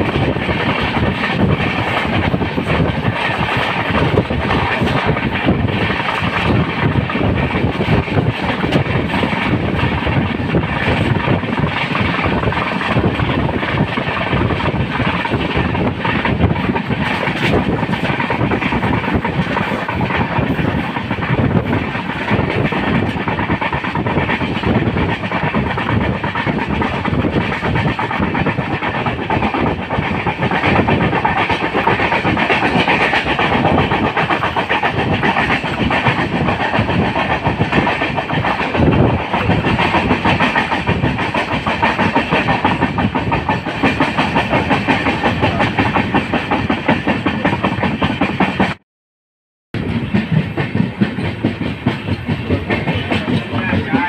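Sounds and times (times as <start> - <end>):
train wheels on rails: 0.0 - 48.8, 49.8 - 54.0.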